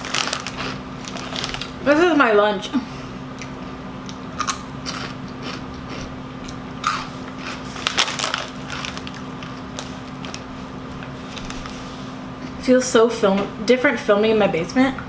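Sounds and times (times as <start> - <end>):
chips being chewed crunchily: 0.0 - 1.8, 3.4 - 11.7.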